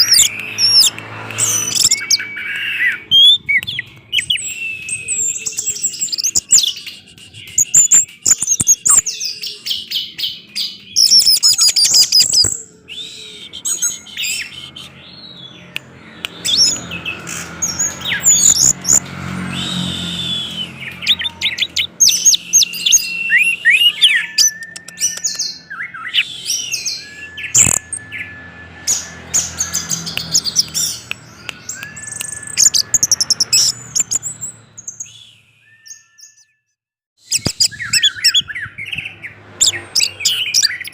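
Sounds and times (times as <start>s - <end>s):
bird song with trills and whistles: 0.0s - 40.9s
sharp click: 27.6s - 28.0s.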